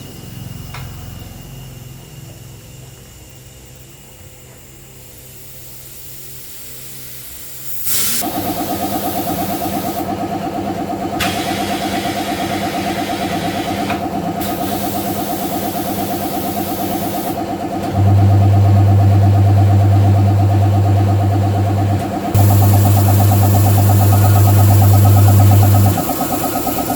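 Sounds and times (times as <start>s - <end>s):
machine motor pulsing: 0.0s - 7.6s, 8.2s - 26.9s
loud low hum: 17.8s - 26.9s.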